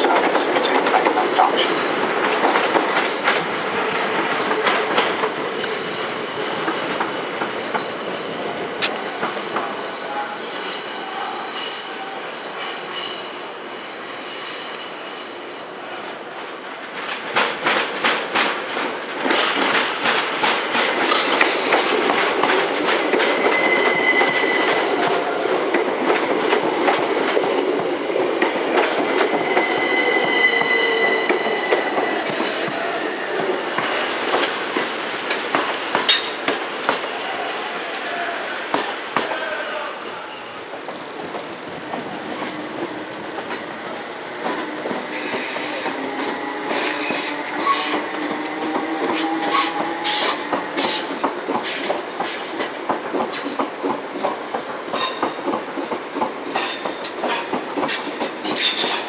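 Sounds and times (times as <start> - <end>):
train wheels clicking over joints: 0.0 - 10.0, 16.4 - 38.1, 40.6 - 59.0
electric train pulling away: 21.2 - 26.0, 26.6 - 33.7, 41.2 - 52.3
high wheel squeals: 23.3 - 25.0, 28.4 - 32.7.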